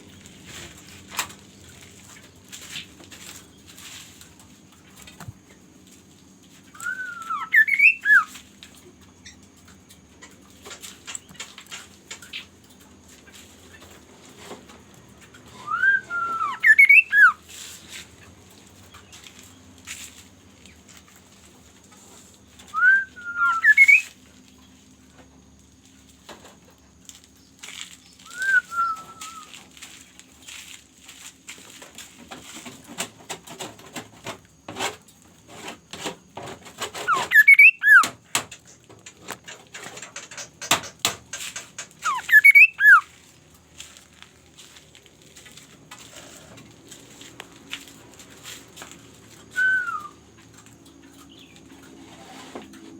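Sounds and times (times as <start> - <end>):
bird whistling calls: 6.7 - 8.3, 15.5 - 17.4, 22.7 - 24.1, 28.1 - 29.5, 37.0 - 38.1, 42.0 - 43.1, 49.5 - 50.2.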